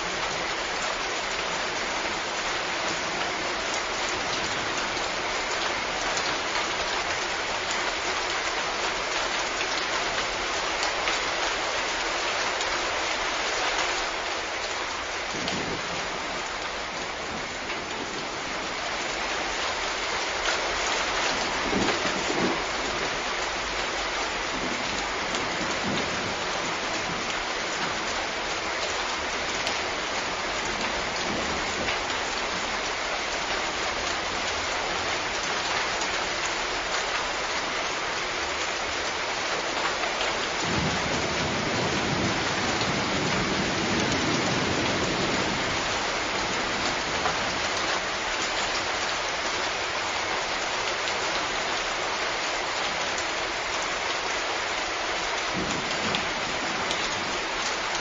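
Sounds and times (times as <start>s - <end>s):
heavy rain falling: 0.0s - 58.0s
distant thunder rumbles: 21.4s - 23.2s, 24.5s - 28.0s, 40.5s - 46.5s, 55.5s - 57.5s.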